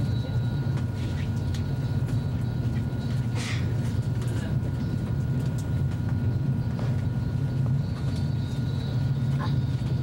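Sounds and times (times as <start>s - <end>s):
train interior low rumble: 0.0s - 10.0s.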